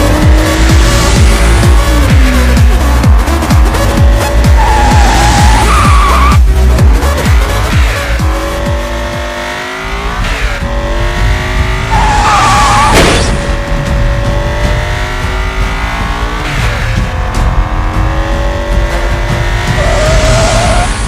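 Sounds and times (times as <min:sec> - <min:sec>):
music: 0:00.0 - 0:21.0
race car engine revving: 0:00.0 - 0:21.0
tire squeal: 0:04.2 - 0:06.5, 0:11.8 - 0:13.5, 0:19.7 - 0:21.0.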